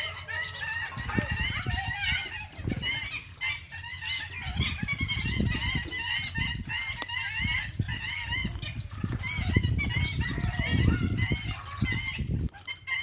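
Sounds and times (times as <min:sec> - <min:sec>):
birds chattering: 0:00.0 - 0:13.0.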